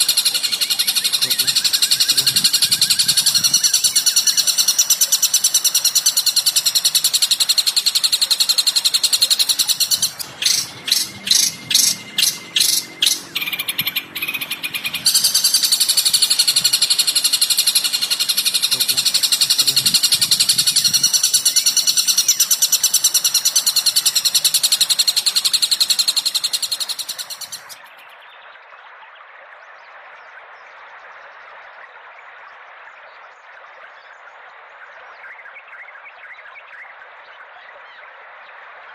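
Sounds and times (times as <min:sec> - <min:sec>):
songbird chattering: 0:00.0 - 0:28.0
sharp bird chirps: 0:00.0 - 0:28.2.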